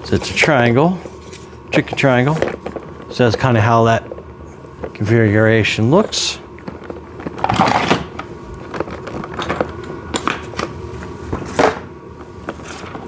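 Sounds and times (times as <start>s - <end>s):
faint steady hum: 0.0s - 13.0s
plastic parts clattering: 6.8s - 10.4s.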